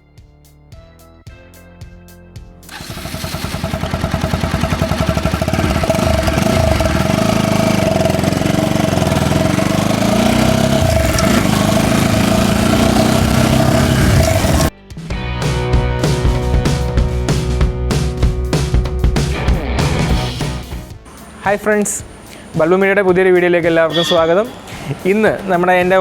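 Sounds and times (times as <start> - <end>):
motorcycle engine revving: 2.7 - 14.7.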